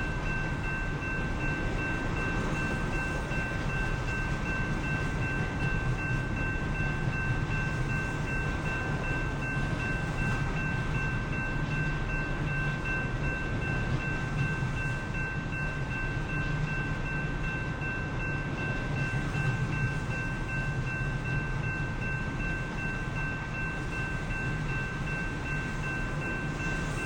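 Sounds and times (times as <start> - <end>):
high-pitched ringing tones: 0.0 - 27.0
train rumbling past: 0.0 - 27.0.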